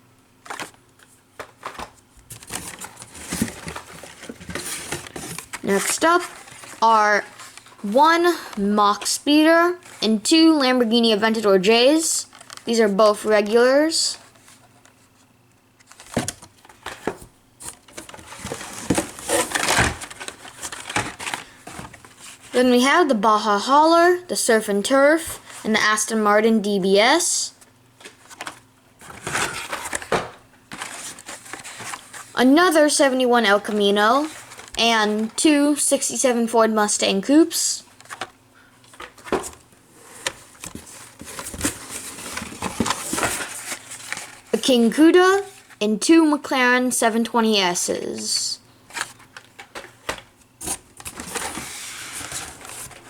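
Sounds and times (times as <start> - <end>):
crinkly rustling: 0.4 - 10.2, 12.2 - 22.6, 28.0 - 35.4, 37.9 - 44.6, 48.9 - 53.0
plastic blister packs crinkling: 12.3 - 12.8, 15.8 - 22.5, 28.0 - 32.4, 37.9 - 44.6.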